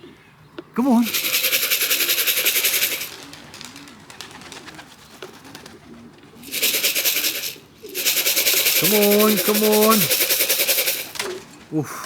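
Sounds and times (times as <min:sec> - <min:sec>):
pigeons cooing: 0:00.0 - 0:12.0
loud fast rattle: 0:01.0 - 0:03.2, 0:06.4 - 0:11.2.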